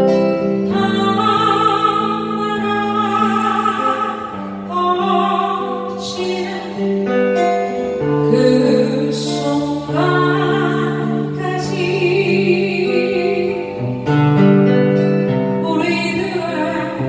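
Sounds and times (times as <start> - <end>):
person singing: 0.0 - 14.1, 15.6 - 17.0
acoustic guitar: 0.0 - 17.0.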